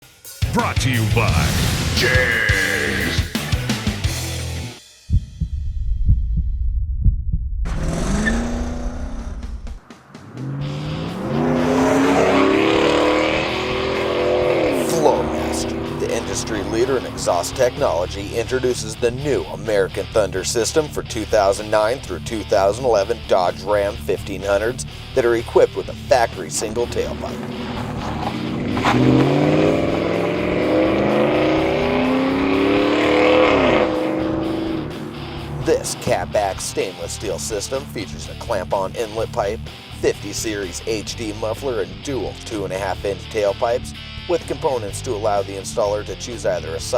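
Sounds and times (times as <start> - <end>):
deep music beat: 0.4 - 8.0, 9.2 - 20.4, 24.4 - 38.2
exhaust note rising in pitch: 7.0 - 21.0, 23.6 - 38.1
car engine revving: 7.7 - 46.9.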